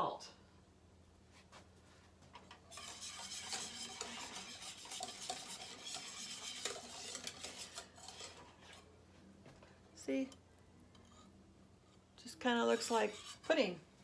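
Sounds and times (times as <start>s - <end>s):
utensil scraping a saucepan: 2.5s - 9.0s, 11.0s - 13.8s.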